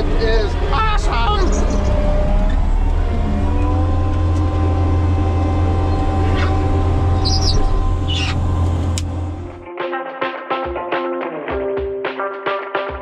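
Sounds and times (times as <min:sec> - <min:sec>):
diesel engine running under load: 0:00.0 - 0:09.6.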